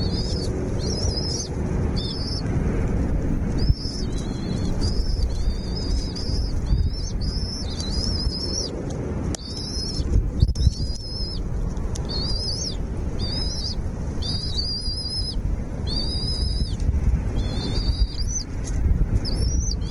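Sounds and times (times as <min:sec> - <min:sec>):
small bird high wavering call: 0:00.0 - 0:02.4, 0:03.6 - 0:08.7, 0:09.4 - 0:11.4, 0:12.0 - 0:16.8, 0:17.4 - 0:18.5
low steady rumble: 0:00.0 - 0:19.9.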